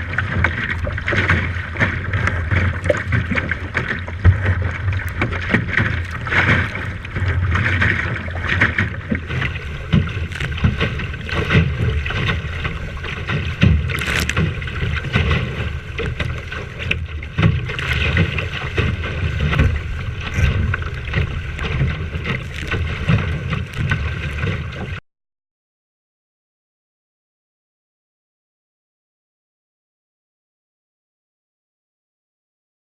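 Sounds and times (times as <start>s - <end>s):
water splashing against hull: 0.0s - 25.0s
wind buffeting microphone: 0.0s - 25.0s
knocks on boat: 0.4s - 23.6s.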